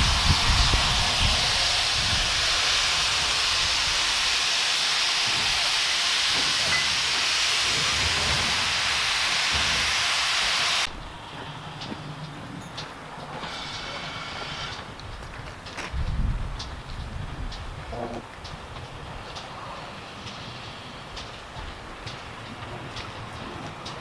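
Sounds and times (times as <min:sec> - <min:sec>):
steam locomotive venting steam: 0:00.0 - 0:24.0.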